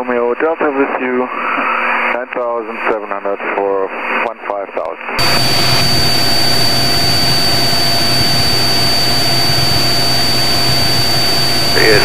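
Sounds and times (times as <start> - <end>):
propeller plane engine drone: 5.2 - 12.0
thin high whine: 5.2 - 12.0.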